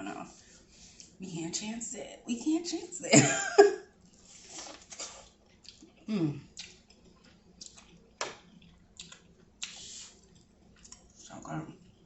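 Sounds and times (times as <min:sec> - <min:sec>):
chewing and wet mouth sounds: 0:00.8 - 0:01.2, 0:04.1 - 0:12.0.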